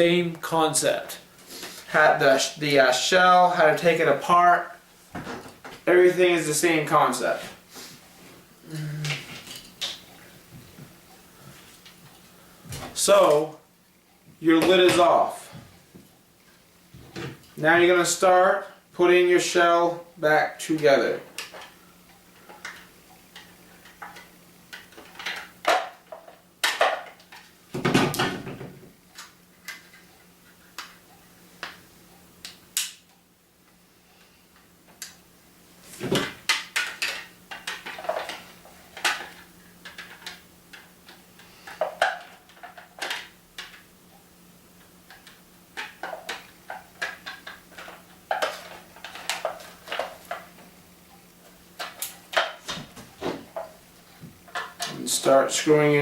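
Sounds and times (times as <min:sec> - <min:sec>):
plastic parts clicking and knocking: 0:22.4 - 0:30.0, 0:36.0 - 0:43.9, 0:44.8 - 0:50.7, 0:54.5 - 0:55.0
plastic clatter: 0:36.0 - 0:43.8, 0:45.1 - 0:50.6.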